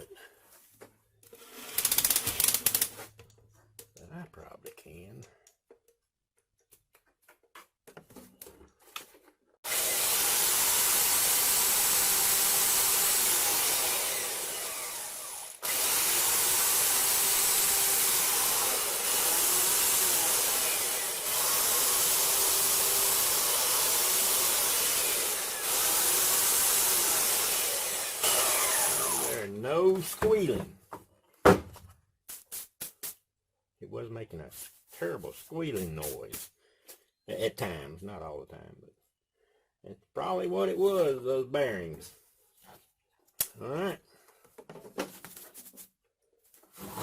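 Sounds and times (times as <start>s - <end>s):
belt sander running: 9.7s - 29.5s.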